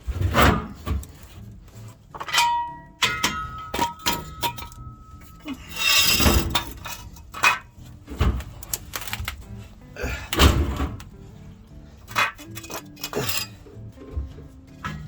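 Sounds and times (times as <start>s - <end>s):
scraping rattle: 0.0s - 9.2s, 12.0s - 13.8s
metal tools clinking and knocking: 2.1s - 9.4s, 12.0s - 15.0s
metal strike ringing: 2.3s - 5.4s.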